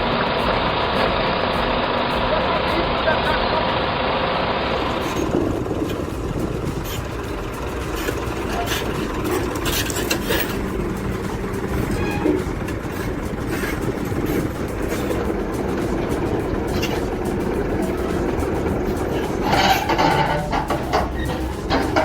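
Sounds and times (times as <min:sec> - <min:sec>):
diesel machinery running: 0:00.0 - 0:22.0
sharp metal clanks and knocks: 0:05.0 - 0:22.0.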